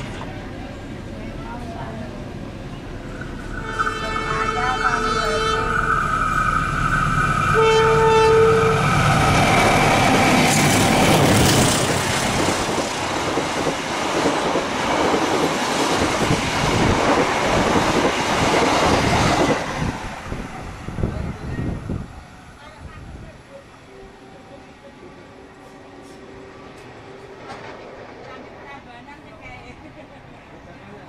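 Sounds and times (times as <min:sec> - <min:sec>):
train rushing and rail clatter: 0:00.0 - 0:31.0
train horn: 0:03.5 - 0:06.1, 0:07.5 - 0:09.1.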